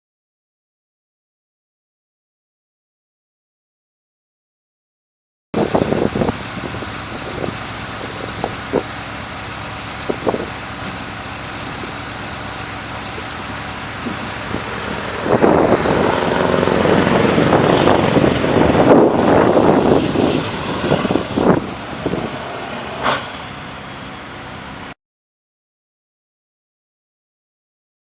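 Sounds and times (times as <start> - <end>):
truck engine running: 5.6 - 25.0.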